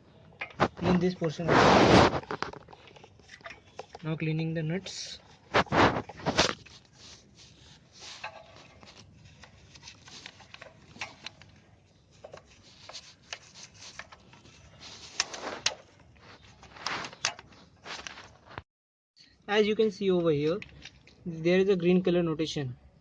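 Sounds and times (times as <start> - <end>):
brush scrubbing metal parts: 3.3 - 11.3.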